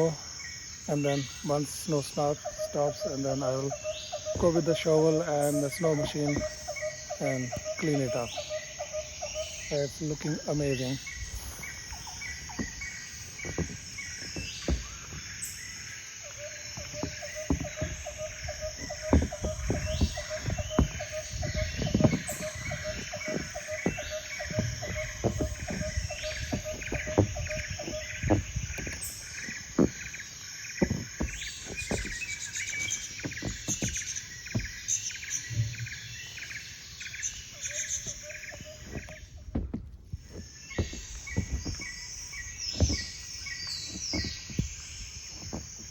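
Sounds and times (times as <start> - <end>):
birds chirping: 0.0 - 45.9
low thumps: 12.2 - 15.7, 16.7 - 36.0, 38.0 - 45.9.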